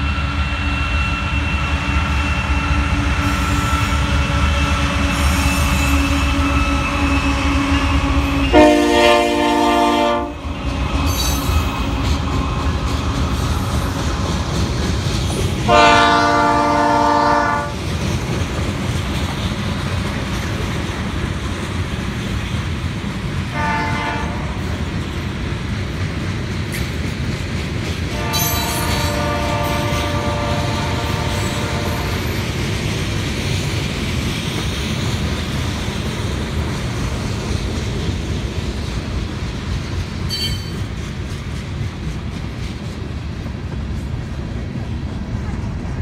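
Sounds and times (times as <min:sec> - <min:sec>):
high wheel squeal: 0:00.0 - 0:08.5, 0:40.3 - 0:40.9
freight train rumble and clatter: 0:00.0 - 0:46.0
distant locomotive air horn: 0:00.5 - 0:10.6, 0:15.7 - 0:17.8, 0:23.5 - 0:24.8, 0:28.1 - 0:32.4.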